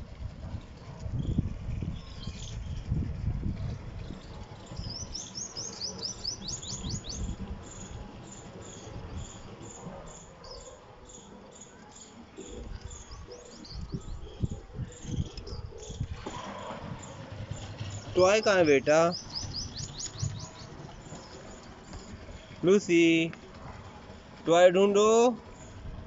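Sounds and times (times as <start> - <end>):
small birds chirping: 4.0 - 26.0.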